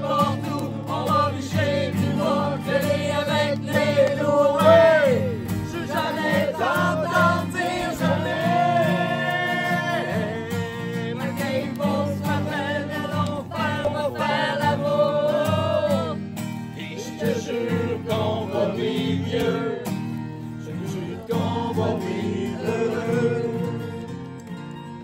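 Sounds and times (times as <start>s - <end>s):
person singing: 0.0s - 16.2s, 20.7s - 24.0s.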